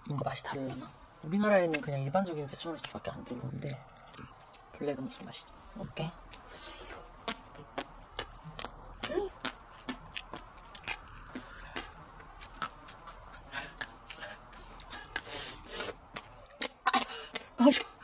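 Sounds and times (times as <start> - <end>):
chewing crunchy seeds: 2.5 - 5.5, 6.2 - 16.8.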